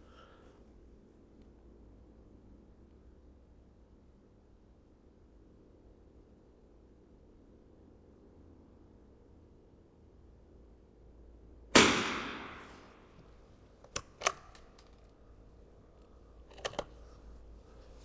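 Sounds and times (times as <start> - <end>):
rifle shot: 11.7 - 13.2
sharp mechanical clicks: 13.8 - 15.1.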